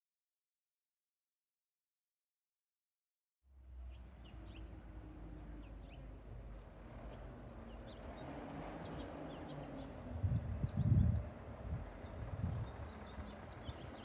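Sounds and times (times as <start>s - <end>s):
small birds chirping: 3.8s - 14.0s.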